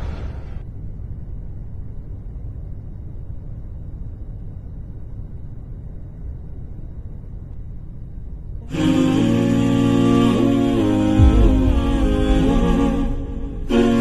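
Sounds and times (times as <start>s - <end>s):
low rumble: 10.3s - 14.0s.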